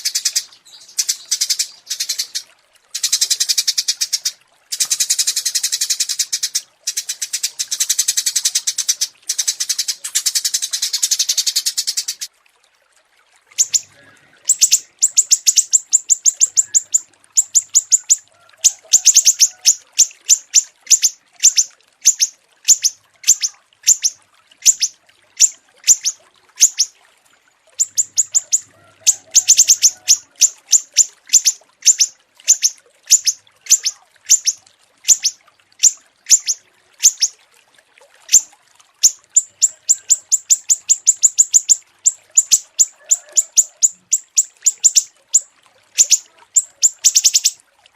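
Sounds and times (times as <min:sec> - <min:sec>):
small songbird chirping: 0:00.0 - 0:02.4, 0:13.6 - 0:18.2, 0:19.0 - 0:26.9, 0:27.8 - 0:37.3, 0:39.0 - 0:47.6.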